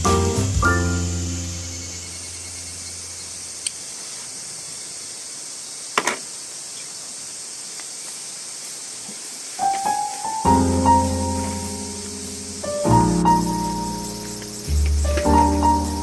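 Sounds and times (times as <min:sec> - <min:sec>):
piano note: 0:00.0 - 0:02.8, 0:09.6 - 0:16.0
high-pitched insect drone: 0:00.0 - 0:05.8, 0:09.6 - 0:16.0
sharp crackle: 0:09.1 - 0:16.0.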